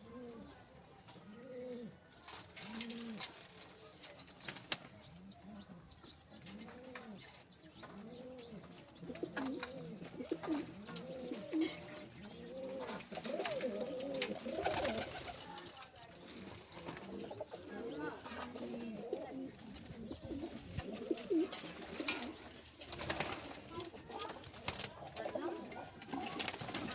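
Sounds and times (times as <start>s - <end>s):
pigeons cooing: 1.2s - 3.5s, 5.0s - 15.6s, 16.2s - 26.9s.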